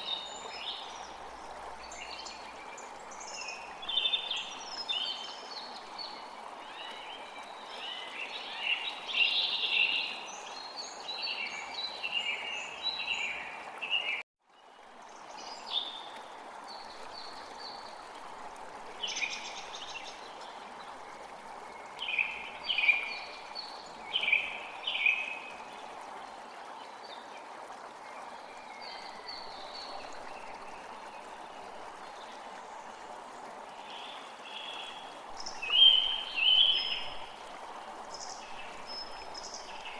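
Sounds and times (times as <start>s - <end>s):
stream rushing: 14.8s - 39.9s.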